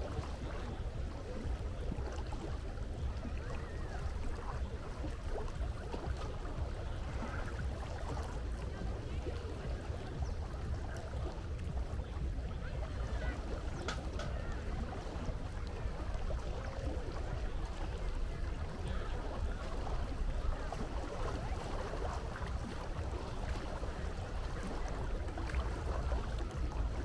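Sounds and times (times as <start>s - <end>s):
sea water washing: 0.0s - 27.0s.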